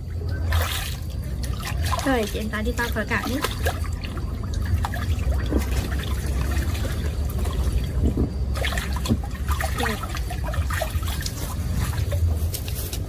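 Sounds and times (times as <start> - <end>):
pool water splashing and gurgling: 0.0 - 13.0
steady low rumble: 0.0 - 13.0.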